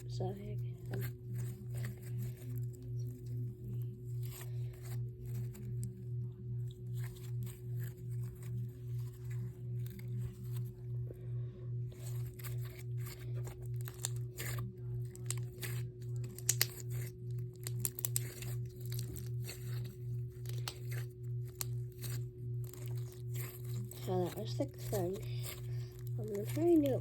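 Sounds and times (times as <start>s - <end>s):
pulsing low hum: 0.0s - 27.0s
slime crackling and popping: 12.1s - 27.0s.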